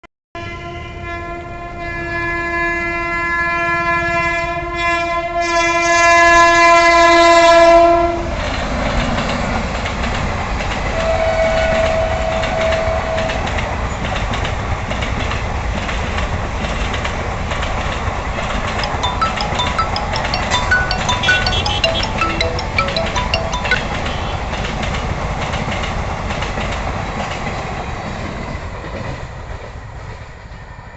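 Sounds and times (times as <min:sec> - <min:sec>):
train horn: 0:00.4 - 0:08.3, 0:11.0 - 0:13.5.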